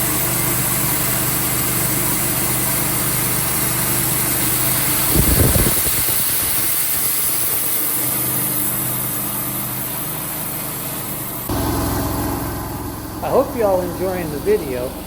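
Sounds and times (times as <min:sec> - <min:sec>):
sawmill engine running: 0:00.0 - 0:15.0
low rumble: 0:11.5 - 0:15.0.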